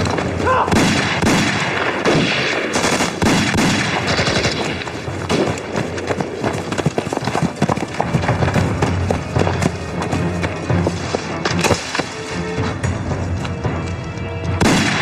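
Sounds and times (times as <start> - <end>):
rifles and machine guns firing: 0.0 - 9.0, 14.6 - 15.0
constant battle din: 0.0 - 12.3, 14.6 - 15.0.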